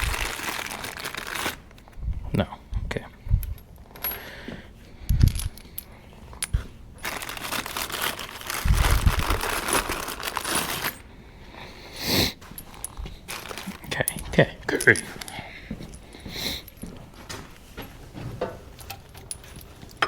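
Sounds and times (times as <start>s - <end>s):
bolts and nuts clinking: 5.1s - 7.3s, 12.5s - 17.0s, 17.8s - 20.0s.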